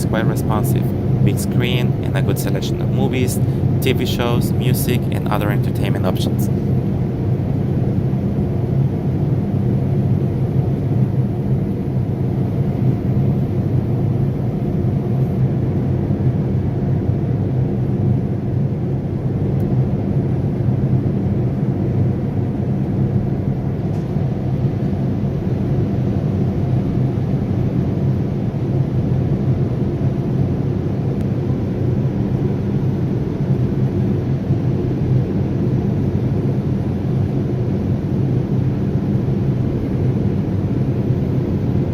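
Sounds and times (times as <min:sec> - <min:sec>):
airliner cabin rumble: 0:00.0 - 0:41.9.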